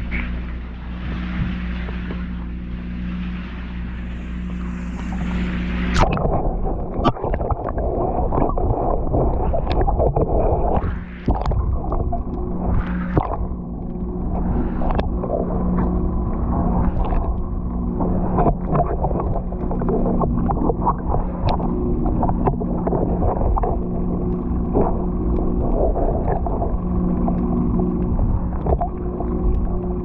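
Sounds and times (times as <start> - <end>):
low mechanical hum: 0.0 - 30.0
water lapping against boat hull: 0.0 - 30.0.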